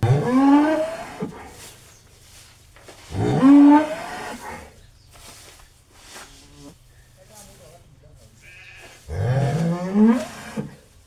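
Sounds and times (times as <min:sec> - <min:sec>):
cow mooing: 0:00.0 - 0:01.3, 0:03.1 - 0:04.7, 0:08.4 - 0:10.8.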